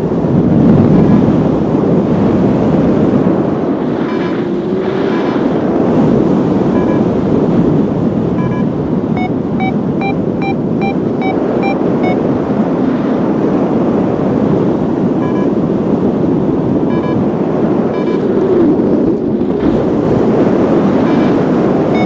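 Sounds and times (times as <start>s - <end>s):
strong wind over microphone: 0.0s - 22.0s
variometer beeping: 6.6s - 7.3s, 8.3s - 12.3s, 15.2s - 15.6s, 16.8s - 18.3s, 20.8s - 22.0s.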